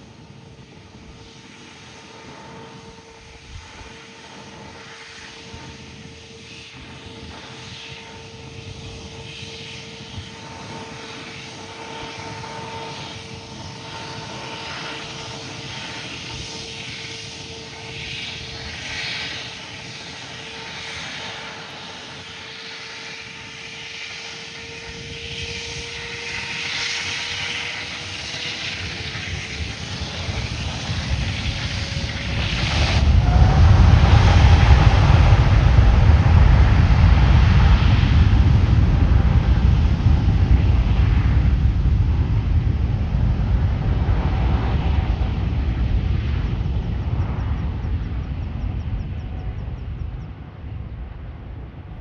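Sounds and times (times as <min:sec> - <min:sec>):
jet engines whining: 0:00.0 - 0:52.0.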